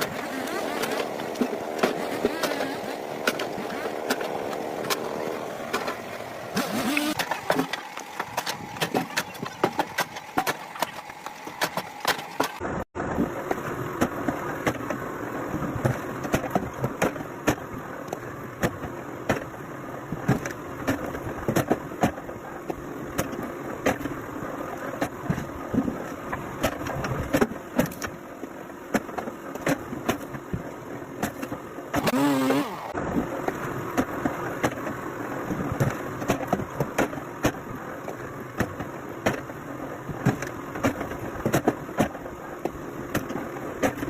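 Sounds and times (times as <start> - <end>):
machinery engine running: 32.0 - 33.1.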